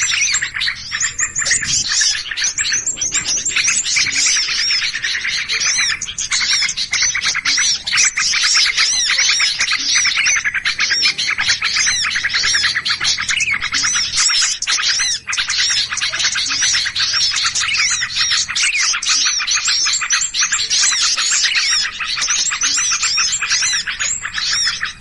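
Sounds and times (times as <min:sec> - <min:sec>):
small birds chattering: 0:00.0 - 0:25.0.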